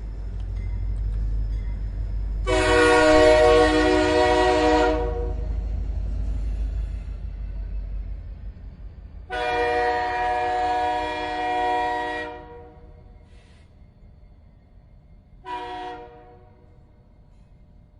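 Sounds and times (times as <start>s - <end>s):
locomotive air horn blasts: 2.4s - 5.5s, 9.3s - 12.9s, 15.4s - 16.6s.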